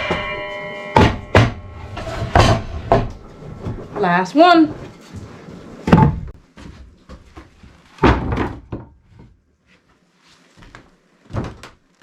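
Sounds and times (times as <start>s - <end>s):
heavy wooden thuds: 1.1s - 6.4s.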